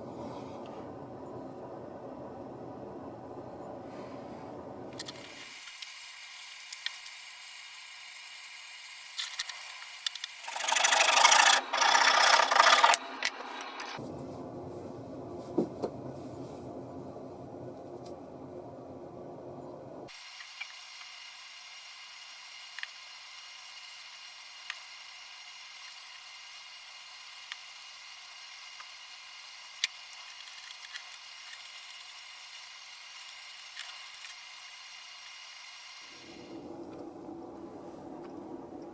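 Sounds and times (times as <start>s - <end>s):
hand tool scraping wood: 10.4s - 14.0s.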